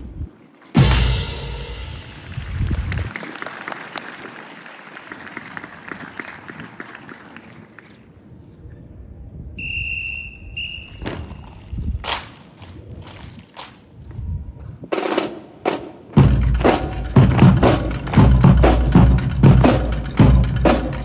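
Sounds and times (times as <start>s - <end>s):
audience applauding: 2.2s - 8.0s
whistle blasts: 9.6s - 11.7s.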